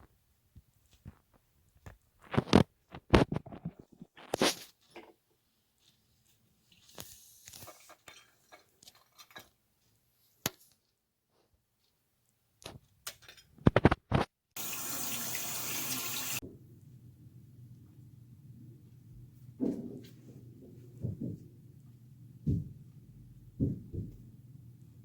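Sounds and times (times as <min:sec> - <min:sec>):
running water rushing: 0:14.6 - 0:16.4.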